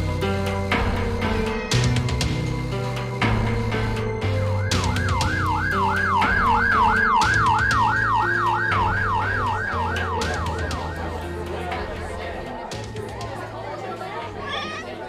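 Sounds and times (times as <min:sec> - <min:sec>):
background music with bass: 0:00.0 - 0:15.0
police siren yelping: 0:03.9 - 0:11.2.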